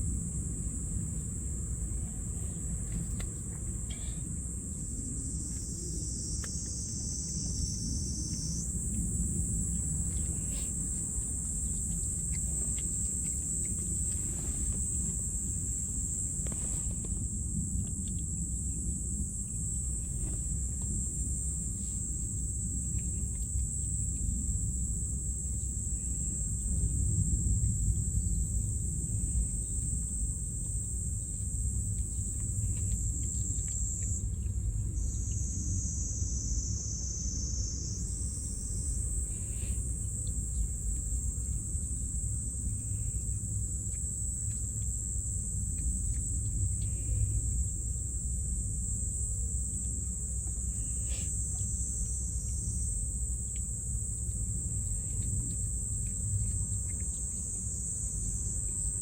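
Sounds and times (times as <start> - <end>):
insects chirring: 0.0 - 59.0
low background rumble: 0.0 - 59.0.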